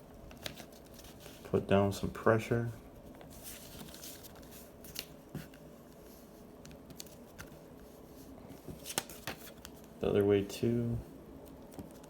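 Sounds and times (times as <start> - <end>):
paper rustling and crackling: 0.3 - 1.6, 3.1 - 6.2, 6.8 - 10.0.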